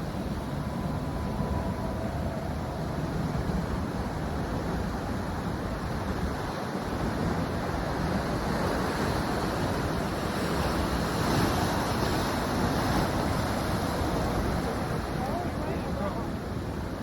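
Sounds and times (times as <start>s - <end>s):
ocean surf breaking: 0.0s - 17.0s
wind on microphone: 0.0s - 17.0s.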